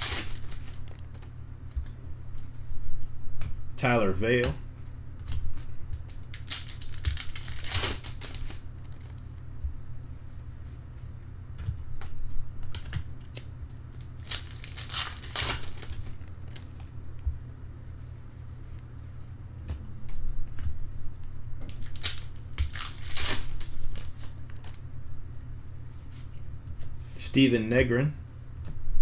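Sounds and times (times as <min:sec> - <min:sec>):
wrappers tearing and crinkling: 0:00.0 - 0:01.3, 0:05.5 - 0:09.2, 0:13.8 - 0:16.9, 0:21.7 - 0:24.8
cards being handled: 0:00.0 - 0:02.0, 0:05.2 - 0:09.3, 0:12.7 - 0:17.0, 0:21.6 - 0:24.8
steady low hum: 0:00.0 - 0:29.0.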